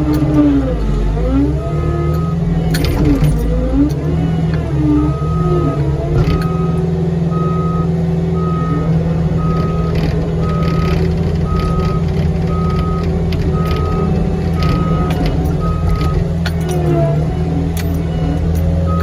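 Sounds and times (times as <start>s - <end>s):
machine clanks and rattles: 0.0s - 7.0s, 9.4s - 19.0s
diesel engine running: 0.0s - 19.0s
backup alarm beeping: 1.6s - 3.5s, 4.9s - 17.0s.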